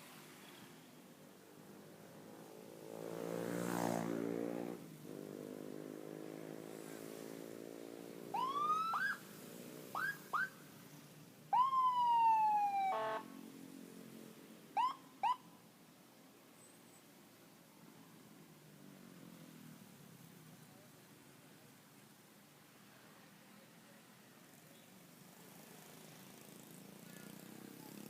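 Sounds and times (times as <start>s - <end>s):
police siren whoops: 8.4s - 9.2s, 11.6s - 13.2s.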